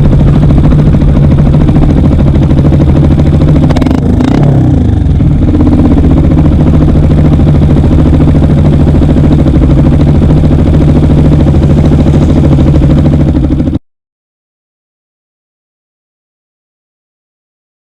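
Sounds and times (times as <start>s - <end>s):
motorcycle engine idling: 0.0s - 13.8s.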